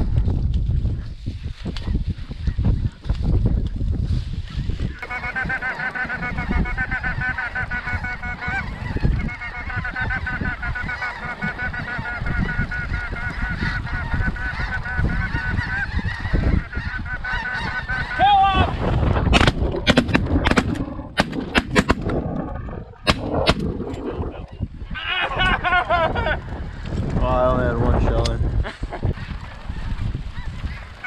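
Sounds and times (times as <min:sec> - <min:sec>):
geese honking: 0:05.0 - 0:18.7, 0:29.1 - 0:31.0.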